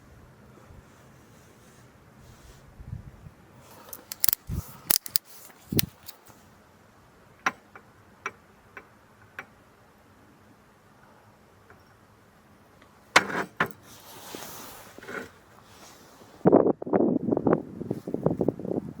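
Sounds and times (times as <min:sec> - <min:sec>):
small objects knocking: 0:03.9 - 0:06.1.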